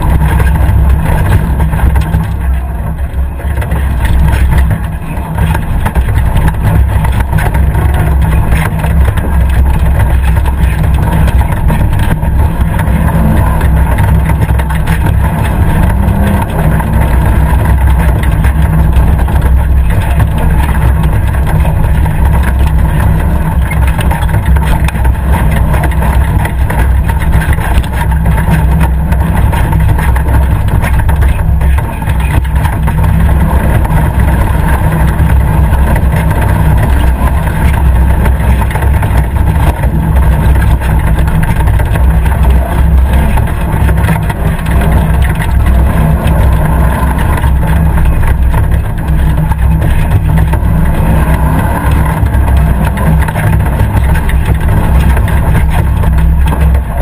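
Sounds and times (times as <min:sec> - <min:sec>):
off-road vehicle engine rumbling: 0:00.0 - 0:57.0.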